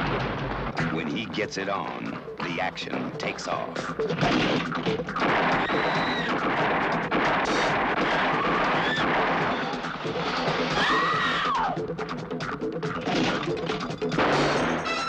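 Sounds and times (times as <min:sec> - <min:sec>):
dense noisy action din: 0:04.2 - 0:11.6.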